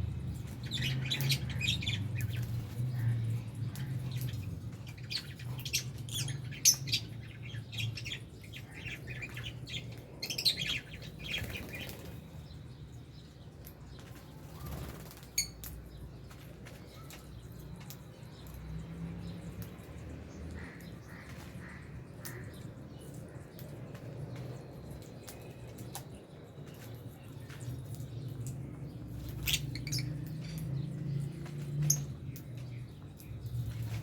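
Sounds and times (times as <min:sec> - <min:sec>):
birds chirping and calling: 0:00.0 - 0:34.0
wings flapping: 0:11.3 - 0:12.2, 0:14.0 - 0:15.4.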